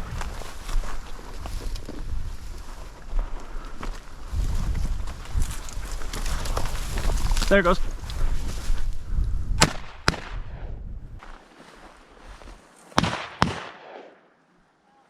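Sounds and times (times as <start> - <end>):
shotgun shots: 9.6 - 10.7, 13.0 - 14.3.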